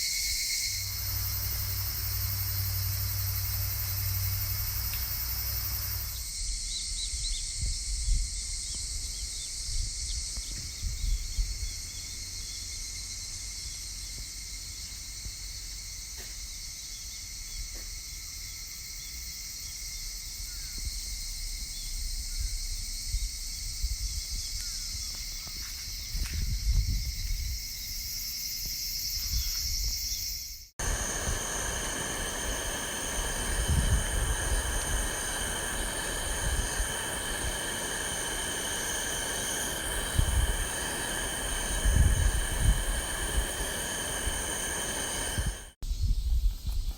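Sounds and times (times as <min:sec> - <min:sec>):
insects chirring: 0:00.0 - 0:46.9
low rumbles: 0:30.8 - 0:45.8.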